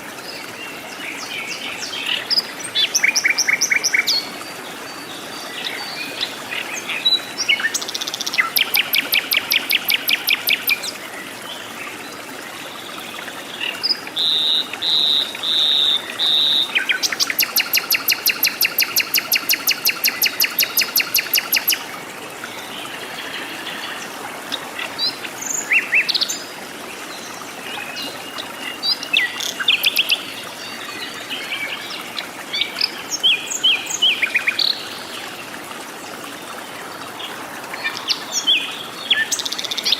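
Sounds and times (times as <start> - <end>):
bird chirps: 17.1 - 21.8.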